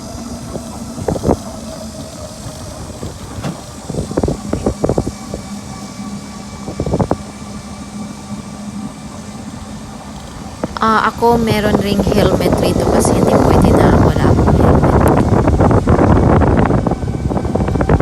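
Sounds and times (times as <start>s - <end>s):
road hum: 0.0s - 18.0s
rattling knocks over bumps: 0.5s - 5.9s.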